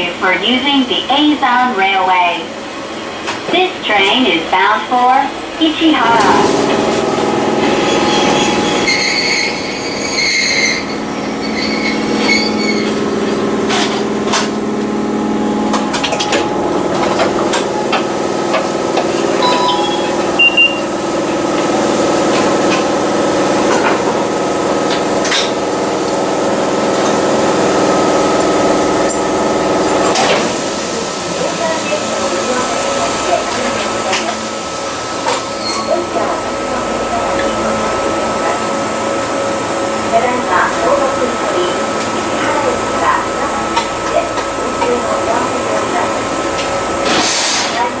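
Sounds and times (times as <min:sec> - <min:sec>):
train motors humming and whining: 0:00.0 - 0:48.0
pulsing bell-like ringing: 0:19.4 - 0:20.9.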